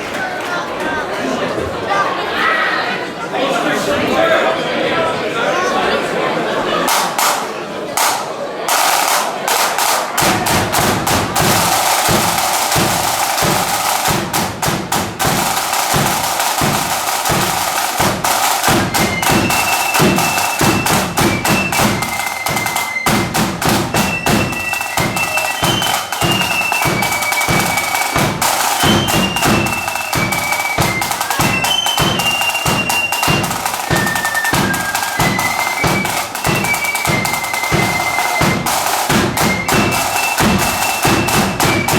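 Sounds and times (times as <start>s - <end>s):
snare and bass drums marching: 6.9s - 41.9s
flutes playing high melody: 15.4s - 41.9s.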